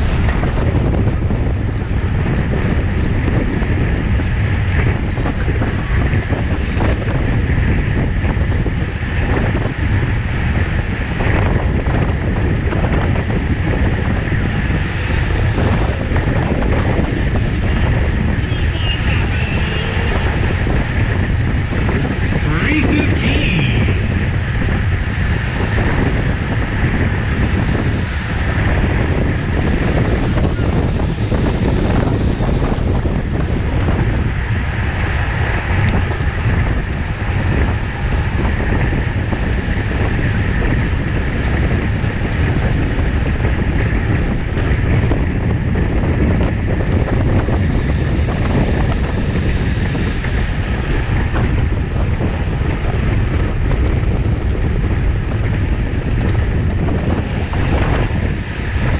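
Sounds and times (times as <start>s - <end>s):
wind rushing over microphone: 0.0s - 58.9s.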